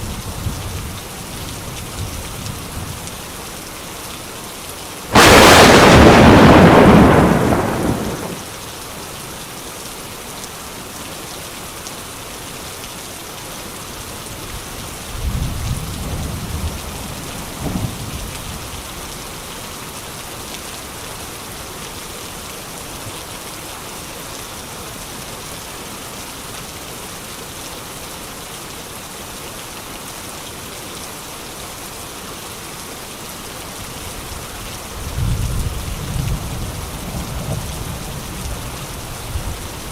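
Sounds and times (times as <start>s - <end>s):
steady rain: 0.0s - 39.9s
loud thunderclap: 5.1s - 8.5s
rolling thunder: 5.1s - 8.5s.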